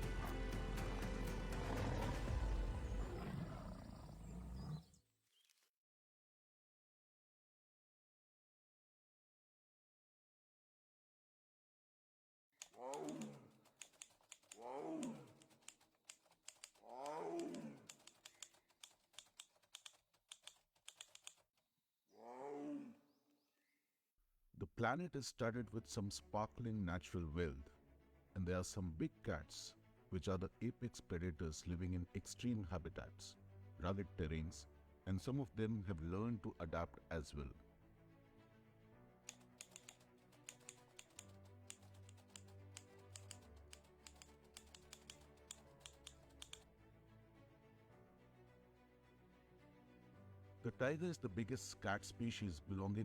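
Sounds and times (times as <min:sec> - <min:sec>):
soft music with bass notes: 0:00.0 - 0:03.0
tiger roar: 0:00.0 - 0:05.0, 0:12.8 - 0:13.6, 0:14.5 - 0:15.5, 0:16.8 - 0:18.0
keyboard typing clicks: 0:12.6 - 0:21.5, 0:39.3 - 0:46.6.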